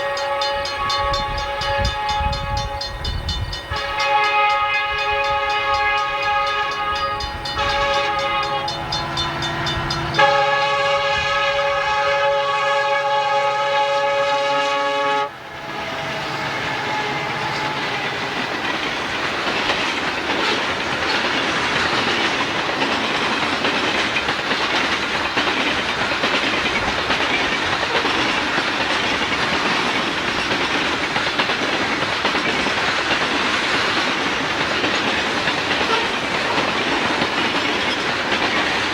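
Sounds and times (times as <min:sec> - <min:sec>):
locomotive air horn blasts: 0:00.0 - 0:18.4, 0:35.8 - 0:36.7
freight train rolling past: 0:00.0 - 0:38.9.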